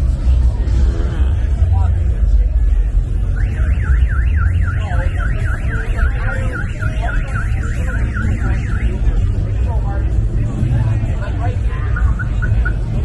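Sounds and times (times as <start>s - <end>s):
car alarm siren wailing: 3.2s - 9.4s, 11.8s - 13.0s.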